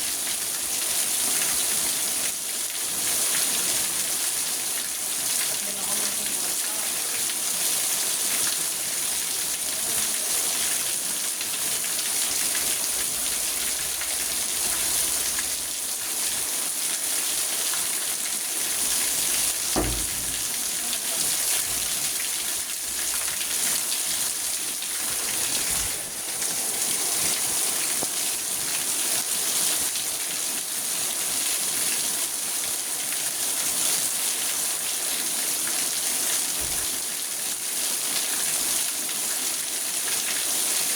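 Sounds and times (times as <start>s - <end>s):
rain on car roof: 10.9s - 30.0s, 36.5s - 37.2s
brief low knock: 19.7s - 21.0s.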